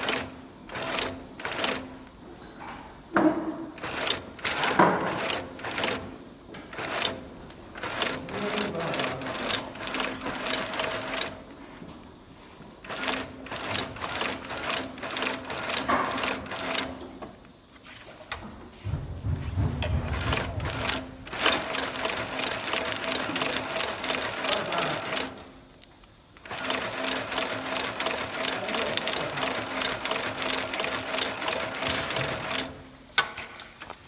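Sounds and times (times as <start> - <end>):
sewing machine stitching: 0.0 - 1.9, 3.8 - 6.1, 6.7 - 7.2, 7.8 - 11.4, 12.8 - 17.0, 20.0 - 25.4, 26.4 - 32.8.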